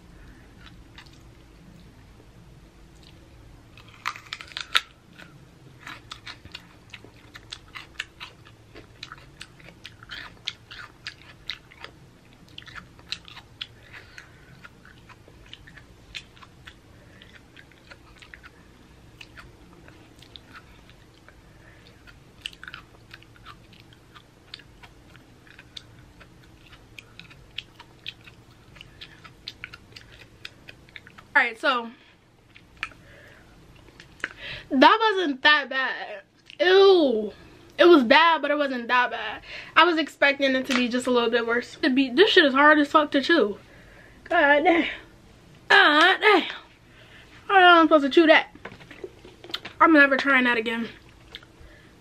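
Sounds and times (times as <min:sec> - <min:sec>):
crunchy chewing: 0:00.2 - 0:02.0, 0:02.9 - 0:31.3, 0:50.9 - 0:51.8.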